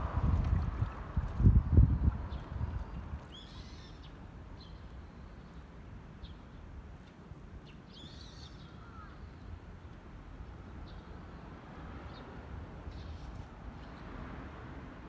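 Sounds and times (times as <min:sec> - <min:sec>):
steady low rumble: 0:00.0 - 0:03.2
small birds chirping: 0:01.6 - 0:06.6, 0:07.6 - 0:09.9.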